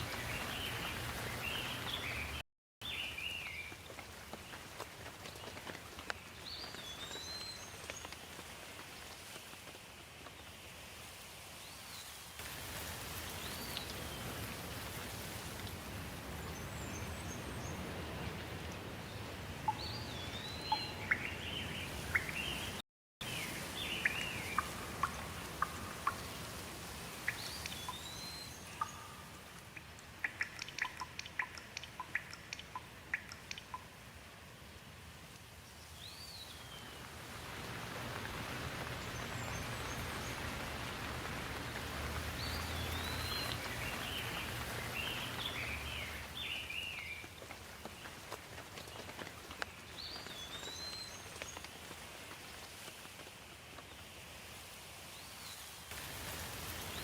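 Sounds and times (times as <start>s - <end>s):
steady rain: 0.0s - 57.0s
sharp drip-like clicks: 18.6s - 18.9s, 19.6s - 21.4s, 22.0s - 22.8s, 24.0s - 34.1s, 41.5s - 53.3s.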